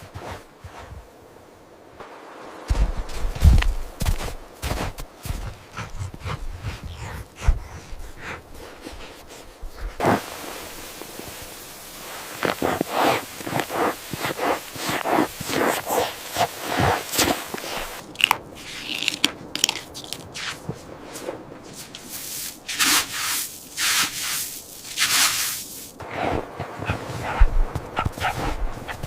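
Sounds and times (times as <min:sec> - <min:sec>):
footsteps crunching in snow: 0:00.0 - 0:01.1, 0:02.2 - 0:18.8, 0:19.9 - 0:29.0
hissing scrapes: 0:05.8 - 0:18.0.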